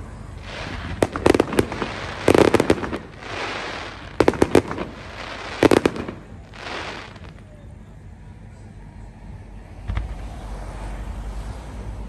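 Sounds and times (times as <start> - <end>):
rushing hiss: 0.4 - 7.4
fireworks bangs: 0.4 - 7.5.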